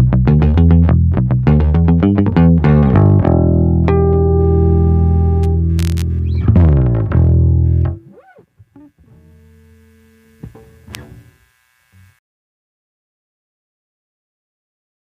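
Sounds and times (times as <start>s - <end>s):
sharp bass pluck: 0.0s - 8.2s
electric bass notes: 0.0s - 12.2s.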